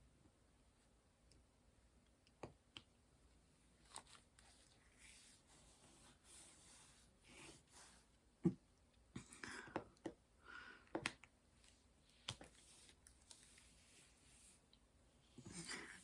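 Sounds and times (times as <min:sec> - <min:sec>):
soft rustling: 0:03.3 - 0:08.2, 0:11.6 - 0:16.0.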